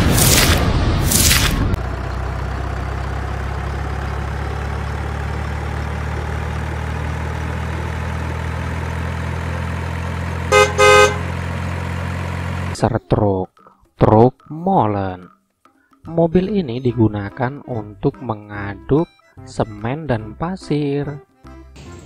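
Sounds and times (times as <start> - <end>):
truck diesel engine idling: 1.8 - 12.8
horn honks: 10.4 - 11.4.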